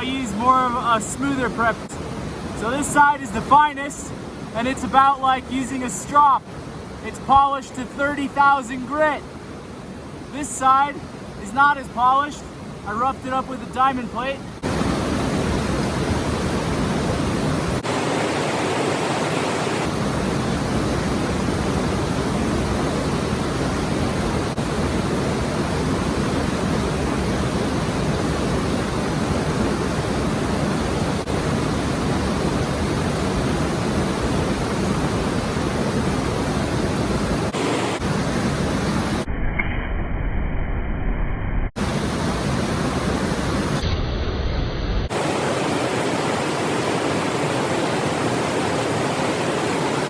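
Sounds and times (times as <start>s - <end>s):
loud rushing noise: 17.8s - 20.0s.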